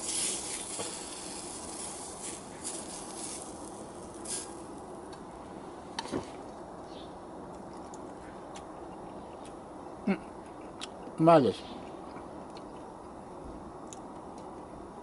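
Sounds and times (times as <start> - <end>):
food sizzling in a skillet: 0.0 - 4.7.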